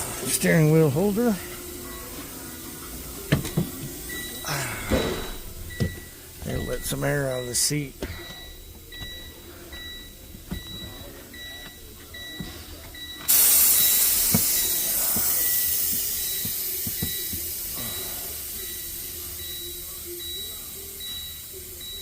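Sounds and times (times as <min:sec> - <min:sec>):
electronic beeping: 0:04.0 - 0:22.0
air seat hiss: 0:13.3 - 0:19.0.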